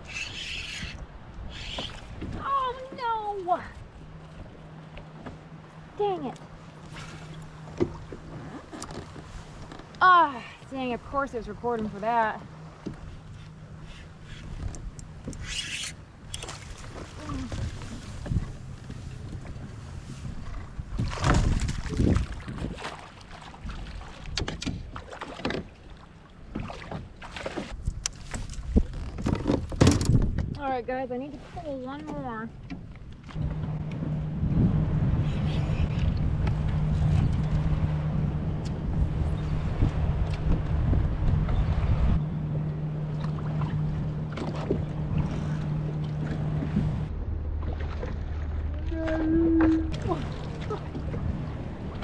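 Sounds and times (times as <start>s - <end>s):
water lapping against kayak hull: 0.0s - 52.0s
wind: 0.0s - 52.0s
knocks and splashes: 1.7s - 10.3s, 16.2s - 30.7s, 43.0s - 52.0s
small splashes and clicks: 14.6s - 18.0s
steady low hum: 33.4s - 52.0s.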